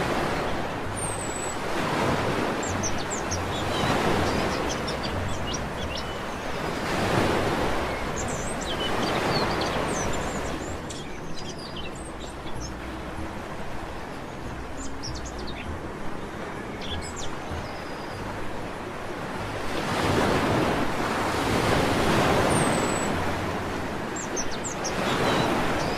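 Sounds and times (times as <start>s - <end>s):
sea waves washing onto beach: 0.0s - 25.9s
small birds chirping: 0.3s - 13.0s, 14.3s - 18.5s, 24.1s - 25.9s.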